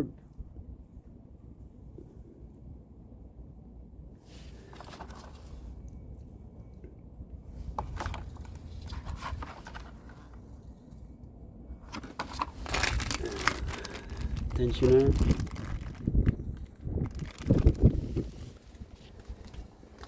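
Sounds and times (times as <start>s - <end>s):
steady low rumble: 10.2s - 20.0s
packaging rustling and clicking: 11.9s - 20.0s.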